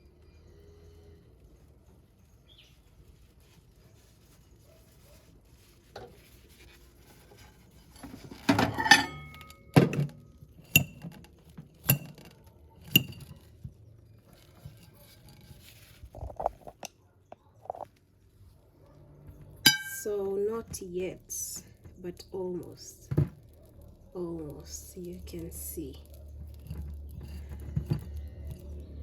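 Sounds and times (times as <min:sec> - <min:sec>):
dishware scraping clatter: 0:07.8 - 0:09.8, 0:19.7 - 0:20.1
sharp clinks on a plate: 0:08.7 - 0:09.6, 0:19.7 - 0:20.1.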